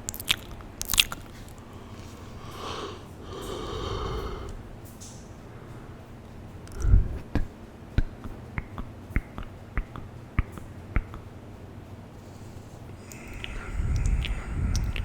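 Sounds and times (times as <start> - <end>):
tongue and lip clicks: 0.0 - 5.2, 6.6 - 11.2, 13.0 - 15.0.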